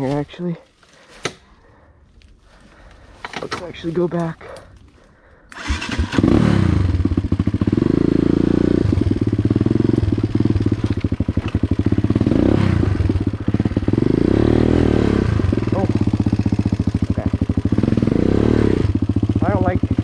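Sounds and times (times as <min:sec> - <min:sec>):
dirt bike engine revving: 0:05.5 - 0:20.0.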